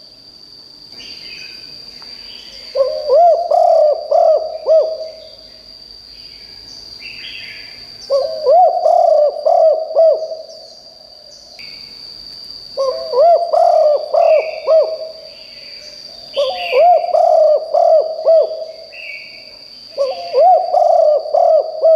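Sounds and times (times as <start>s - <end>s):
faint bird chirps: 0.9s - 11.9s, 12.8s - 21.9s
dove cooing: 2.7s - 5.3s, 8.1s - 10.6s, 12.8s - 15.3s, 16.4s - 19.2s, 19.9s - 21.9s.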